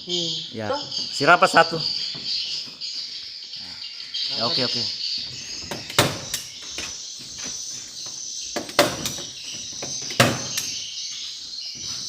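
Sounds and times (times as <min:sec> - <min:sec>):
bird calls from speakers: 0:00.0 - 0:12.0
loud sharp knocks: 0:05.7 - 0:06.4, 0:08.6 - 0:10.7.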